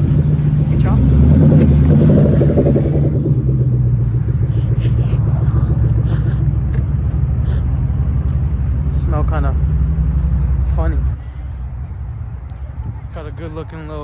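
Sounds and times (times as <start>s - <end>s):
car engine lopey idle: 0.0s - 14.0s.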